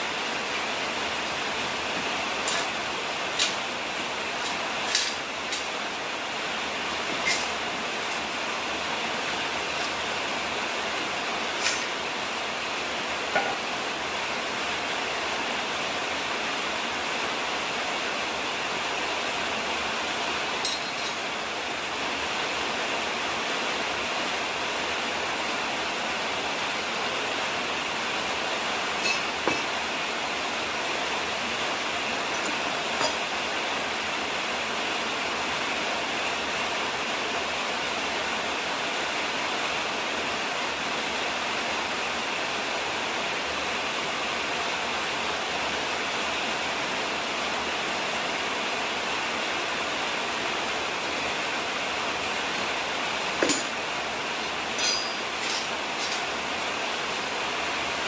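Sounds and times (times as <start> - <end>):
steady hiss: 0.0 - 58.0
metal parts clinking: 7.2 - 7.6, 11.6 - 12.0, 20.6 - 21.2, 54.8 - 57.4.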